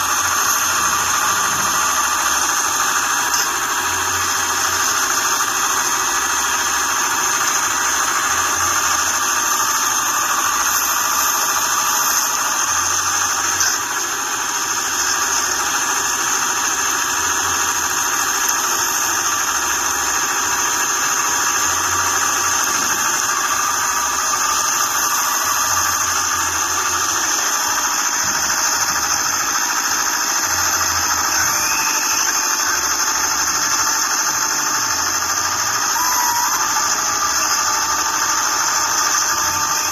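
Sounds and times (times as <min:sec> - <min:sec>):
motor whining: 0:00.0 - 0:39.9.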